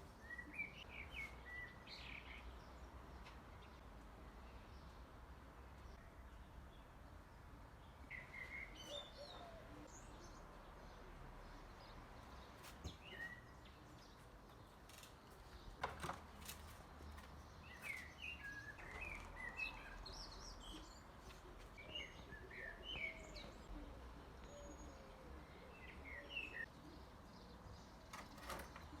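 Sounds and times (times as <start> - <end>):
songbirds chirping: 0.0 - 29.0.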